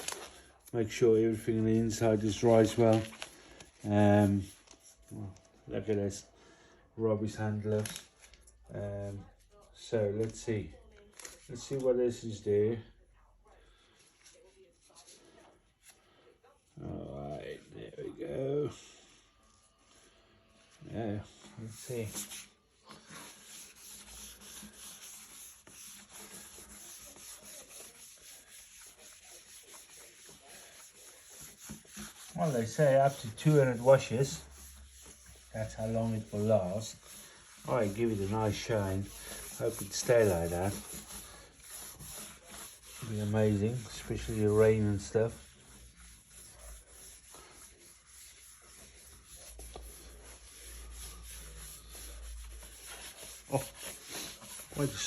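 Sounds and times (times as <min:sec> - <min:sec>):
wet wipe rubbing plastic: 0:19.1 - 0:55.0.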